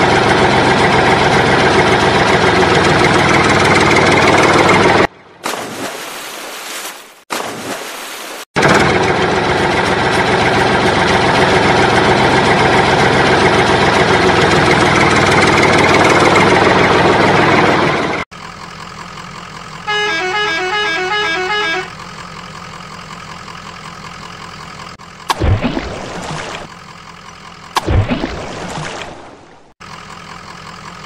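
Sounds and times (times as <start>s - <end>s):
loud steady horn: 19.8s - 22.0s.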